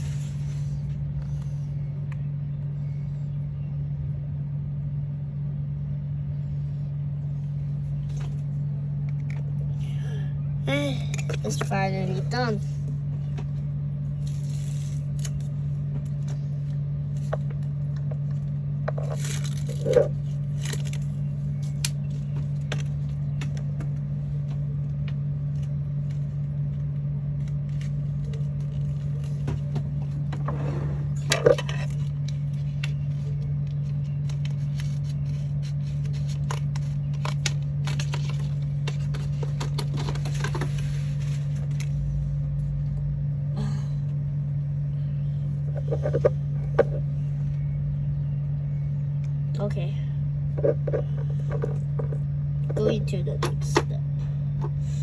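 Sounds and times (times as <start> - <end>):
rustling and scraping materials: 0.0 - 2.0, 10.8 - 42.9, 45.4 - 47.6, 50.4 - 55.0
steady low hum: 0.0 - 55.0.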